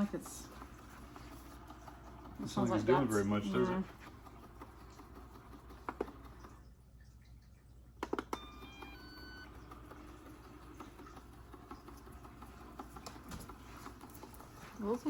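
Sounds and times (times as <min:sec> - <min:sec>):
robot vacuum beep tune: 0:08.3 - 0:09.6.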